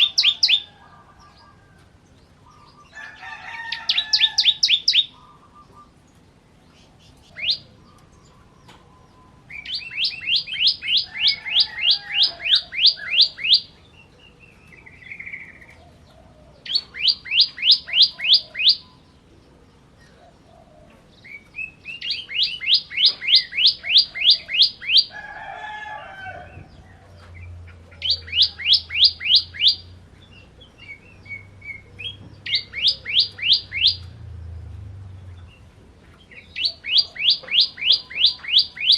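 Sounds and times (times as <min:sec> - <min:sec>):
bird singing sharp chirps: 0:21.3 - 0:25.1, 0:28.0 - 0:34.1.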